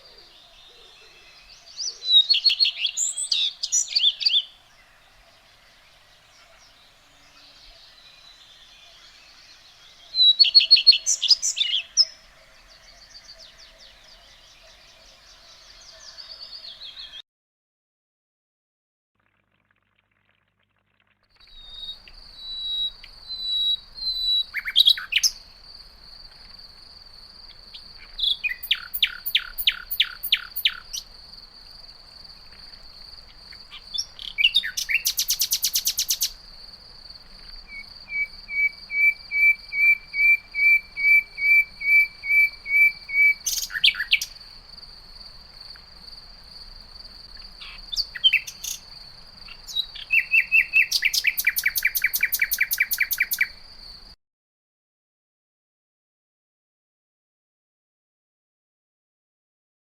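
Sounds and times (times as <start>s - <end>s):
nightingale singing: 0.0s - 17.2s, 20.1s - 25.6s, 27.4s - 31.1s, 32.4s - 44.5s, 47.3s - 54.2s
high insect trill: 21.4s - 54.2s.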